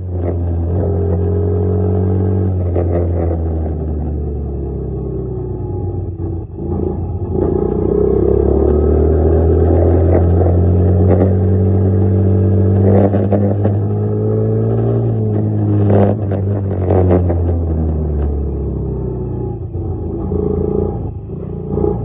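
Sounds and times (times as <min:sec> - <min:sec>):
dirt bike engine running: 0:06.5 - 0:13.9.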